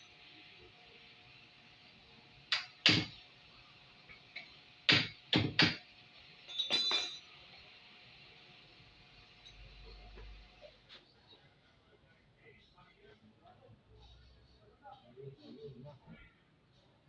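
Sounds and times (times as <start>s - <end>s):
metallic clinking rattle: 6.5s - 7.4s.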